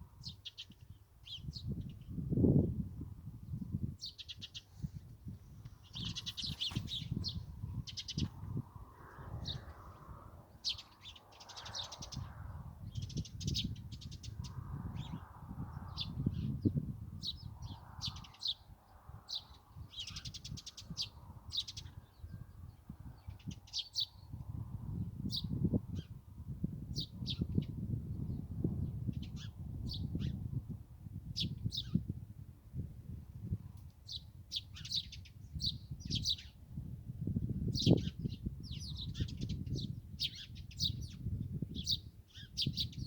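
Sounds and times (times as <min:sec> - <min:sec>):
songbirds chirping and trilling: 0:00.0 - 0:02.2, 0:03.4 - 0:26.3, 0:31.3 - 0:32.1, 0:34.0 - 0:36.6, 0:37.4 - 0:43.0.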